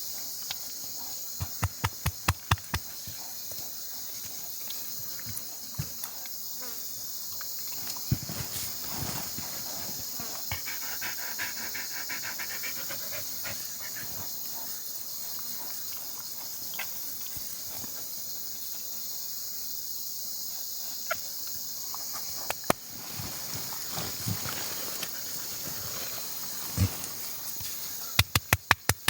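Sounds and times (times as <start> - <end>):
dog panting: 10.3 - 16.1.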